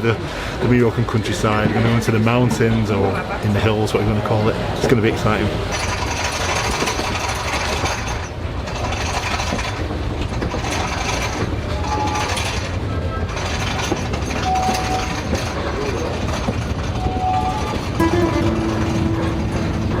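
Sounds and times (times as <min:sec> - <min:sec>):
train carriage rattling and clanking: 0:00.0 - 0:20.0
high wheel squeals: 0:11.7 - 0:16.2, 0:16.9 - 0:20.0.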